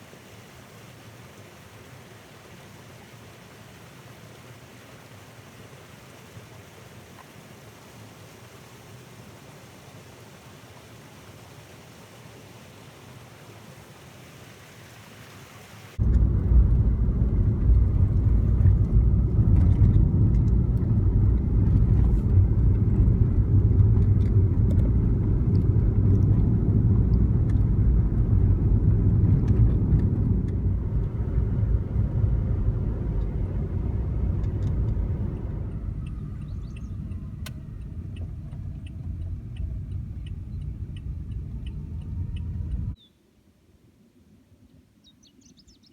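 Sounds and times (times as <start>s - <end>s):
faint light ticks: 16.0s - 28.4s, 34.4s - 43.0s
wind buffeting microphone: 16.0s - 43.0s.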